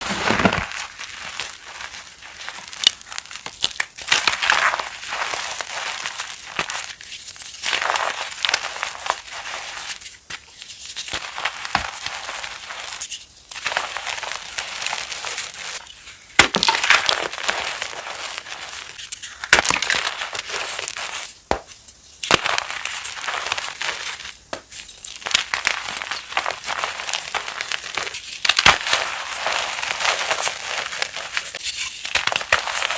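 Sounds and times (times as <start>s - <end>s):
chalk crunching and crackling: 0.0s - 32.9s
sharp cracks of chalk breaking: 15.7s - 18.0s, 19.1s - 32.9s.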